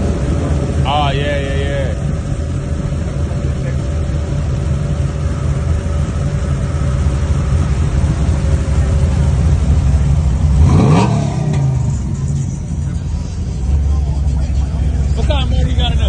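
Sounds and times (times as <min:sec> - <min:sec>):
car engine idling with deep rumble: 0:00.0 - 0:16.0
engine revving: 0:07.3 - 0:16.0.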